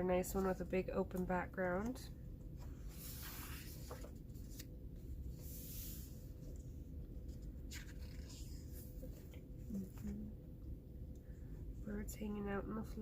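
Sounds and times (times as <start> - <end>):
steady low hum: 0.0 - 13.0
paper pages rustling: 2.6 - 10.2.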